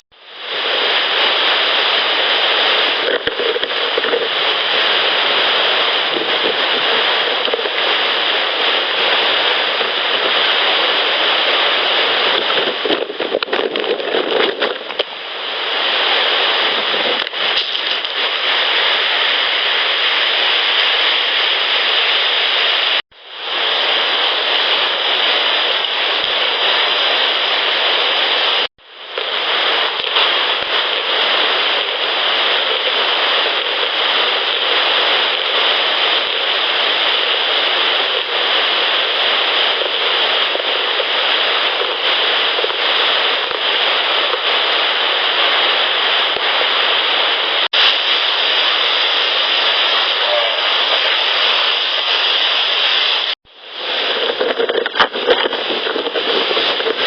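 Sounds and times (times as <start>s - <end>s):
loud steady hiss: 0.2s - 57.0s.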